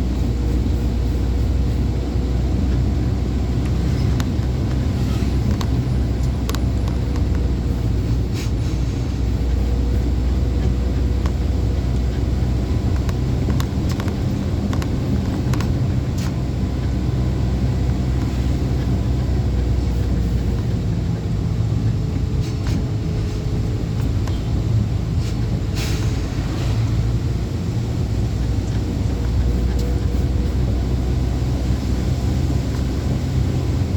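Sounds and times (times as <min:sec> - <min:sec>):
truck engine and road rumble: 0:00.0 - 0:33.9
light clicks and rattles: 0:12.9 - 0:16.9.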